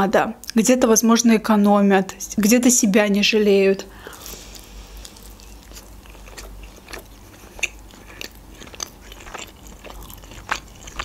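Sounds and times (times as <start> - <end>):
person chewing pizza: 4.0 - 11.0
crisp crust crunches: 4.2 - 11.0.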